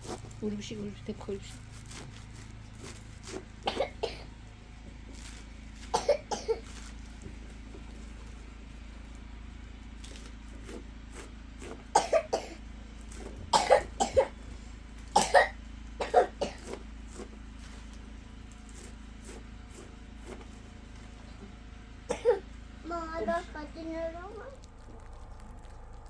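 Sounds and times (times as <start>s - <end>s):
person coughing: 3.7s - 4.3s, 5.9s - 6.6s, 12.0s - 12.6s, 13.5s - 14.4s, 15.2s - 16.8s, 22.1s - 22.4s.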